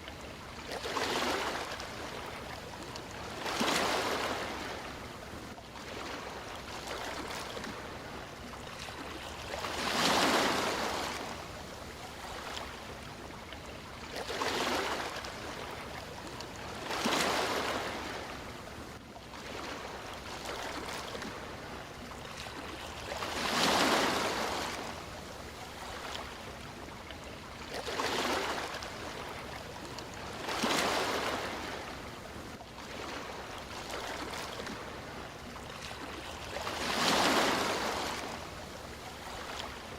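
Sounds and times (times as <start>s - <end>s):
sea waves washing: 8.9s - 12.8s, 22.6s - 26.5s, 36.0s - 39.9s.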